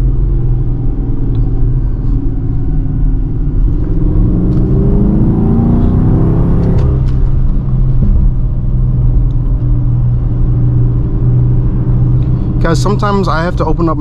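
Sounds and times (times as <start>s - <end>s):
car engine droning in cabin: 0.0s - 14.0s.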